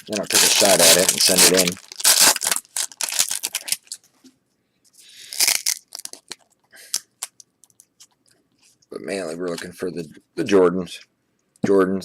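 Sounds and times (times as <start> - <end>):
wrapper rustling: 0.0 - 4.1, 5.3 - 7.4.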